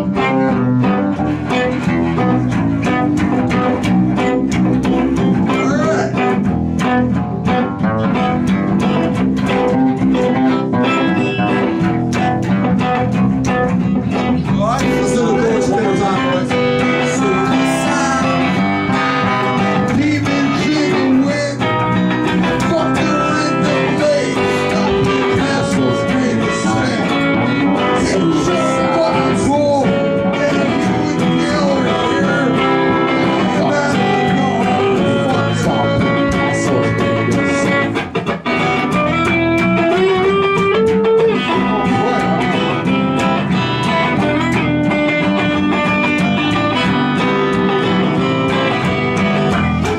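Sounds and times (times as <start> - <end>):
live band with guitar: 0.0 - 49.9
person singing: 14.1 - 38.2, 40.0 - 48.8.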